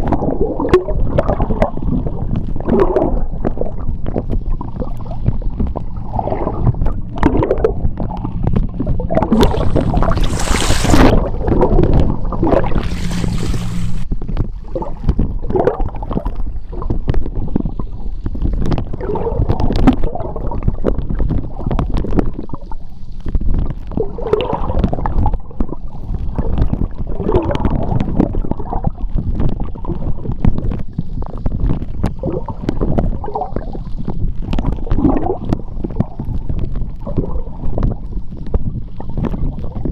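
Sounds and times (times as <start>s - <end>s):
underwater sea water gurgling: 0.0s - 14.1s, 23.9s - 39.9s
hissing rush of bubbles: 9.1s - 14.1s.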